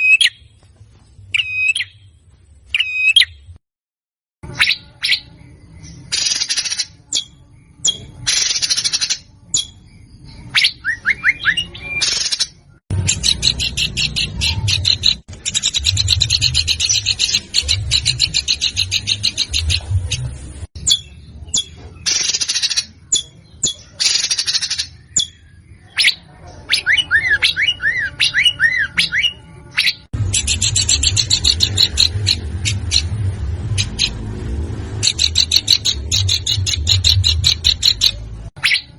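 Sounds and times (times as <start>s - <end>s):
rising whistled bird notes: 4.5s - 12.3s
songbird harsh rasping calls: 4.5s - 19.9s, 20.8s - 34.2s, 35.0s - 38.9s
fast high chattering trills: 12.0s - 20.4s, 25.9s - 34.2s, 34.9s - 38.9s.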